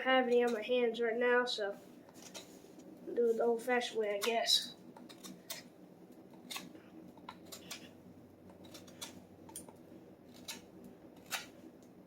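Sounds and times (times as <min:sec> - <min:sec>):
knife scraping wood: 0:02.1 - 0:02.7, 0:04.1 - 0:05.7, 0:06.3 - 0:11.6.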